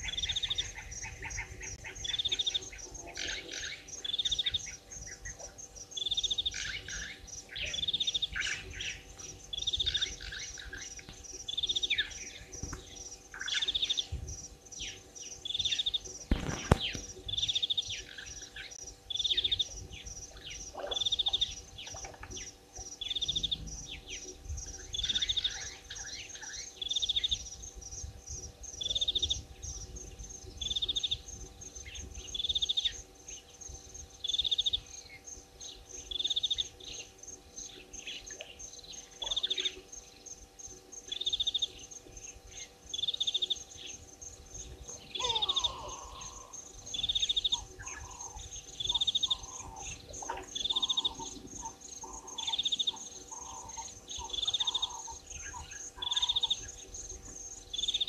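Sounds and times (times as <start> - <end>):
insect trill: 0.0 - 58.0
bird high call: 44.9 - 56.8.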